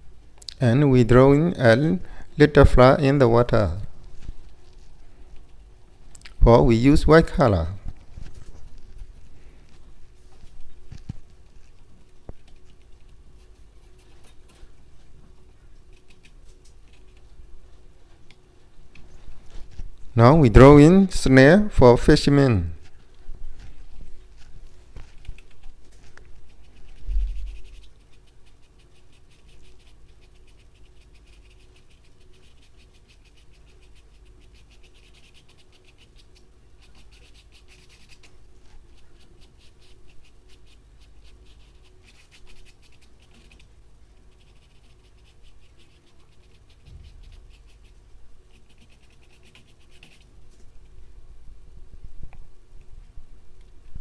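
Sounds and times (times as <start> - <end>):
paintbrush scratching on canvas: 22.4 - 50.8.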